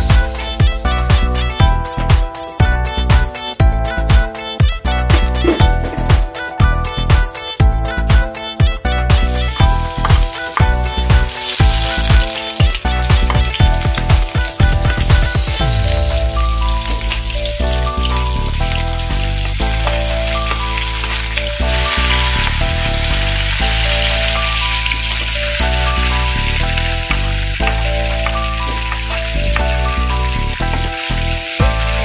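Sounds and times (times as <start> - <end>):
simple background melody: 0.0 - 32.0
food sizzling in hot oil: 9.0 - 32.0.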